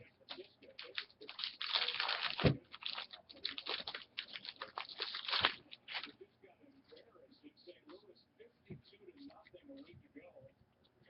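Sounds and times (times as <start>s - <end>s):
wrapper tearing and crinkling: 0.3s - 6.1s.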